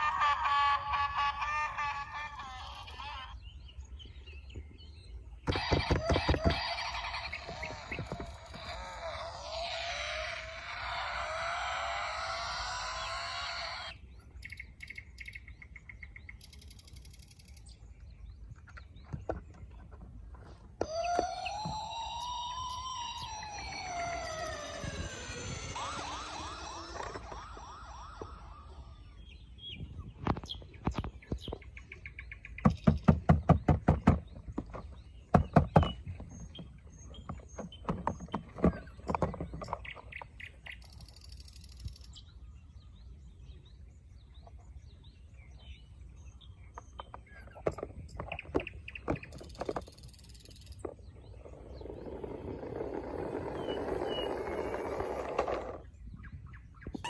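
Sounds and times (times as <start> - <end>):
falling siren-like wail: 20.8 - 29.0.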